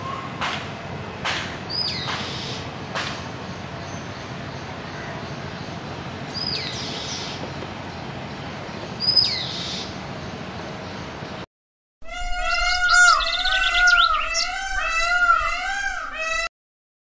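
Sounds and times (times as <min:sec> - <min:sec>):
outdoor background hiss: 0:00.0 - 0:11.4
whistled bird calls: 0:12.1 - 0:16.5.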